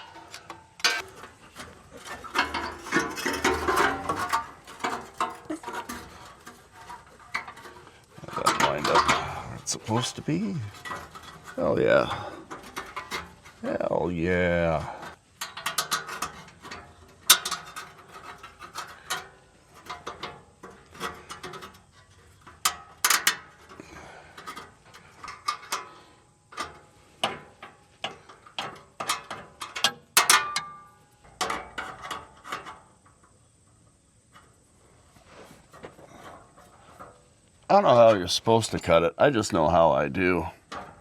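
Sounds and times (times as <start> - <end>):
hand tools clinking on metal: 0.0 - 32.8, 37.7 - 41.0.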